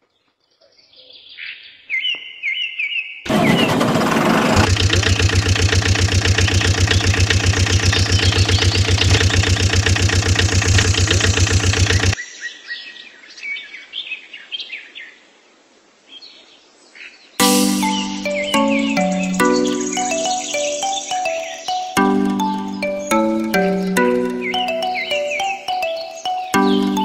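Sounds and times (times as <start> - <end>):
birds chirping: 3.3 - 3.8, 4.6 - 12.2, 17.4 - 27.0
truck engine starting and running: 3.3 - 12.2, 17.4 - 27.0.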